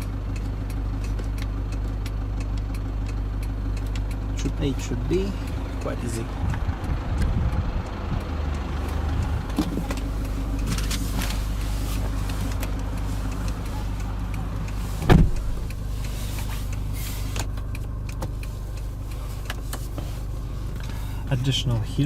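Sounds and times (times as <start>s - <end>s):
car engine idling: 0.0s - 22.0s
thump: 15.0s - 15.4s.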